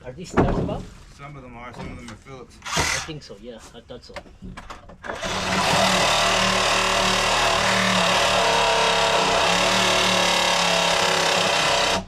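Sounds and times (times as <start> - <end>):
cordless power tool running: 5.1 - 12.0.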